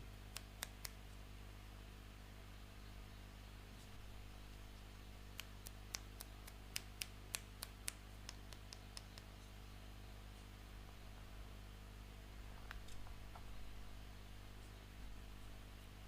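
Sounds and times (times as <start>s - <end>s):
faint low hum: 0.0s - 16.0s
small sharp clicks: 0.3s - 1.0s, 5.3s - 9.5s, 12.6s - 13.6s.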